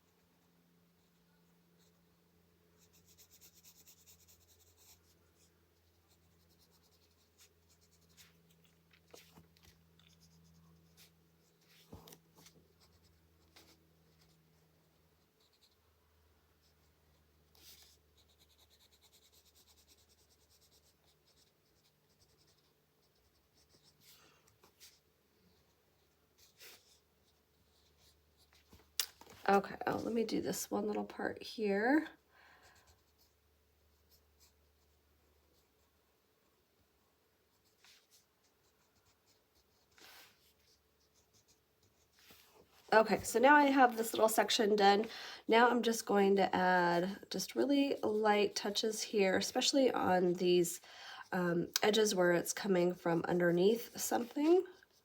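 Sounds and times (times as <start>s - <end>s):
low steady hum: 0.0s - 55.0s
colored pencil scratching on paper: 2.8s - 15.8s, 16.6s - 25.0s, 26.0s - 28.6s, 32.8s - 35.9s, 37.5s - 44.7s.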